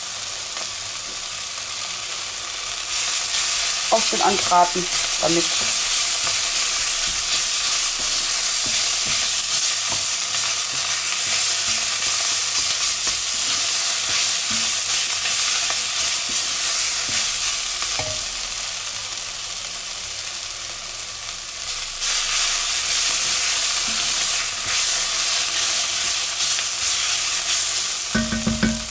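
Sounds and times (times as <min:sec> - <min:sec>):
vegetables sizzling in hot oil: 0:00.0 - 0:28.9
wooden spatula knocking on pot: 0:28.2 - 0:28.9.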